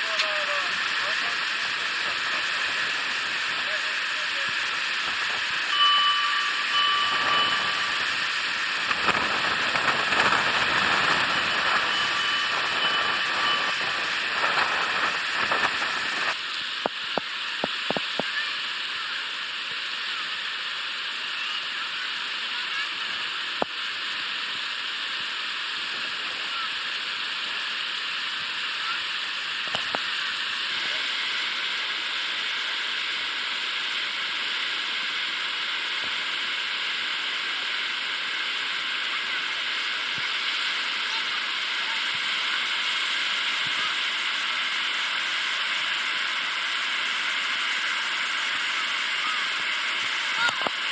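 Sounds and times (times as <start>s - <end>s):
short tones: 4.0s - 16.4s.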